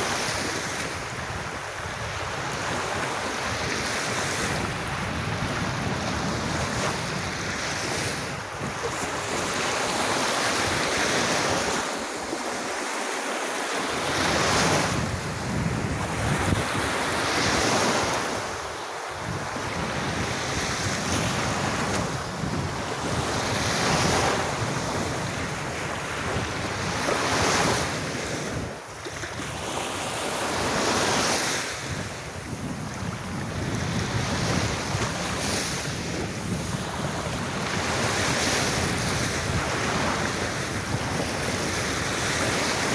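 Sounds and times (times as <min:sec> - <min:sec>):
wind rumbling on microphone: 0:00.0 - 0:12.8, 0:13.8 - 0:42.9
waves washing up a sandy beach: 0:00.0 - 0:42.9.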